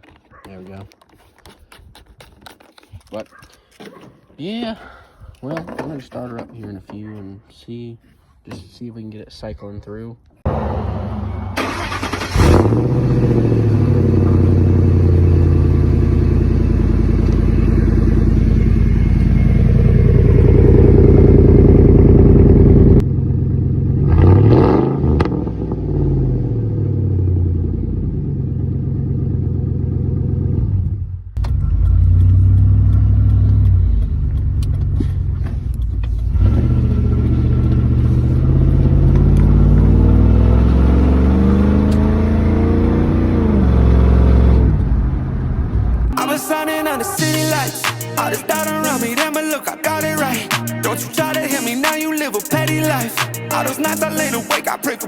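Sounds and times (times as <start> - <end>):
truck engine revving: 10.5 - 28.2, 29.9 - 55.0.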